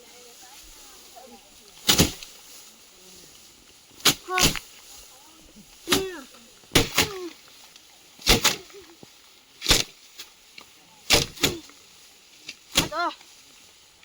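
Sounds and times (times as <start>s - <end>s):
sharp strokes: 1.8s - 2.5s, 4.0s - 4.8s, 8.2s - 8.8s, 9.6s - 10.3s, 11.0s - 11.7s, 12.7s - 13.1s.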